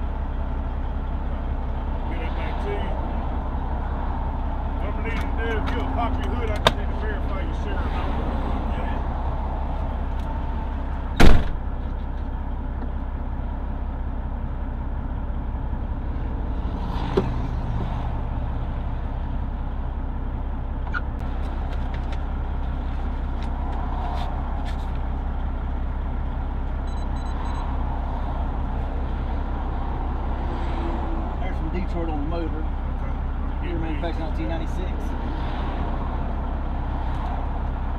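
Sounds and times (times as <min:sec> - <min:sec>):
diesel truck engine idling: 0:00.0 - 0:37.9
loud bang: 0:11.2 - 0:11.6.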